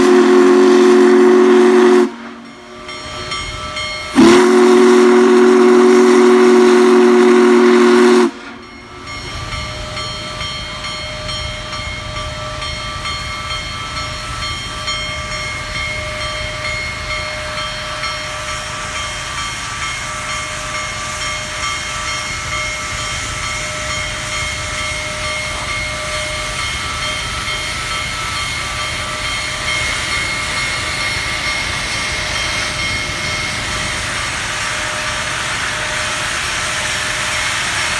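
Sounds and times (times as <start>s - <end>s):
steam locomotive whistle blast: 0.0s - 9.2s
steam locomotive rumble and hiss: 0.0s - 37.9s.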